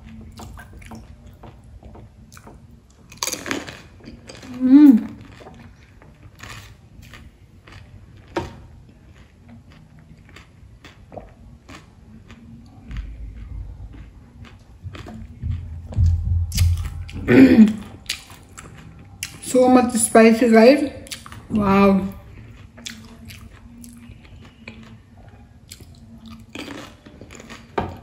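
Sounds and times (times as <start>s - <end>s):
low rumble: 12.6s - 18.1s
wet chewing clicks: 21.0s - 21.5s, 22.3s - 25.0s, 25.7s - 27.7s.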